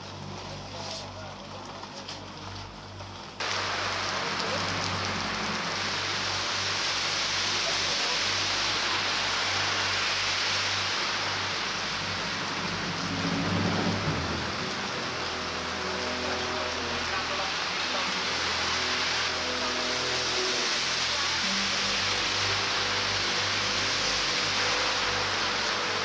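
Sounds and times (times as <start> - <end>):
heavy rain on fabric parasol: 0.0 - 26.0.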